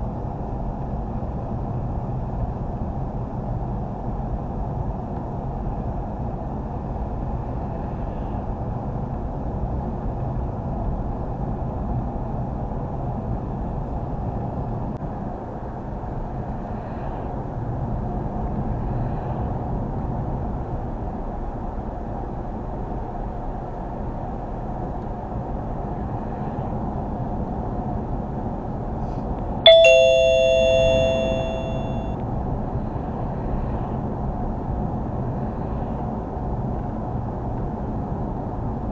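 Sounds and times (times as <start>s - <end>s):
bell-like chime: 29.7s - 32.1s.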